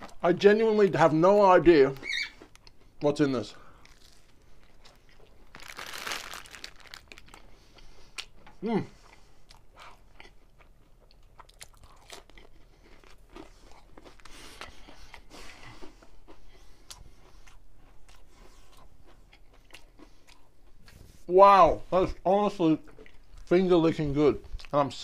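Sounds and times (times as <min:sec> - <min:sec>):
person chewing crunchy snack: 0:03.6 - 0:21.0.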